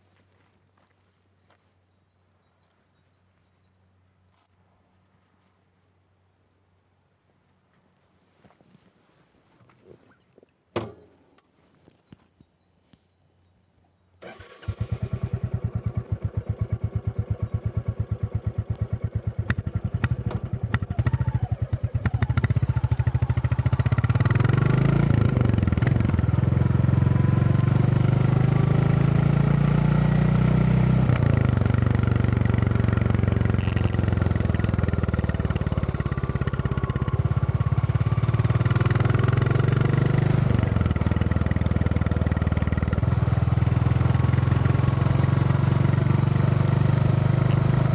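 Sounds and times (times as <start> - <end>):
motorcycle engine idling and accelerating: 14.2 - 47.9.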